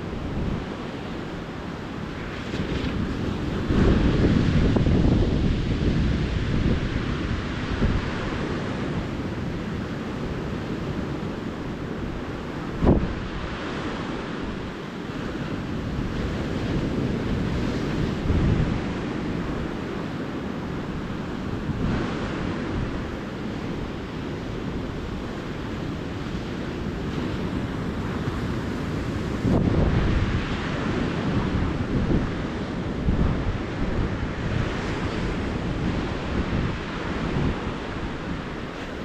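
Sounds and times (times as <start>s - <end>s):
ocean surf breaking: 0.0s - 39.0s
wind bumping microphone: 0.0s - 39.0s.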